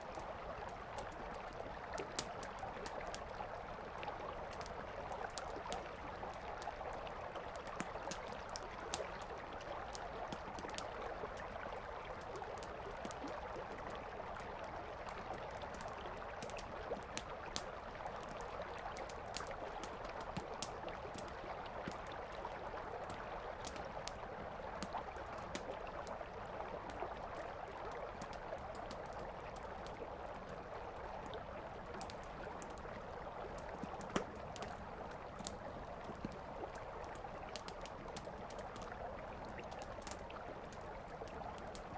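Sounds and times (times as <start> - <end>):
wood fire crackling and popping: 33.5 - 39.0.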